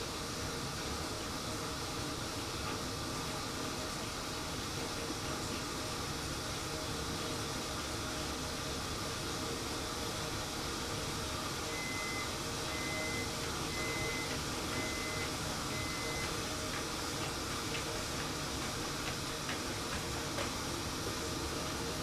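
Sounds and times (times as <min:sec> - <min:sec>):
high beeps: 0:11.8 - 0:16.2.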